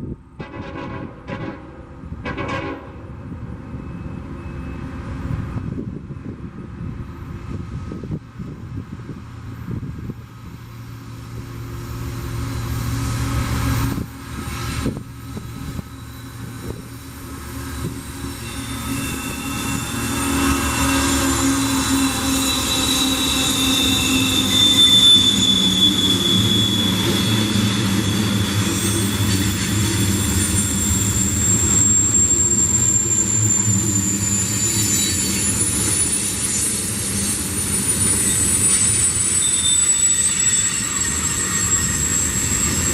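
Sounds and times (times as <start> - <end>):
diesel locomotives running: 0.0 - 42.9
high wheel squeals: 3.7 - 5.4, 12.4 - 42.9.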